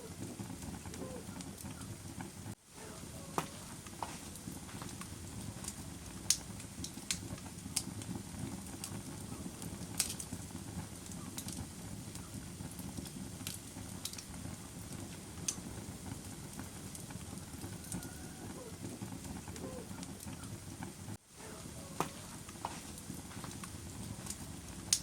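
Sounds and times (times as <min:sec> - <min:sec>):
fire crackling: 0:00.0 - 0:25.0.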